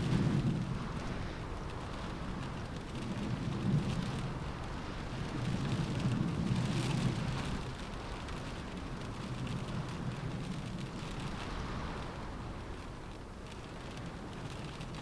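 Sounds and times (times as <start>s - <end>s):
gusting wind: 0.0s - 15.0s
steady rain: 0.0s - 15.0s.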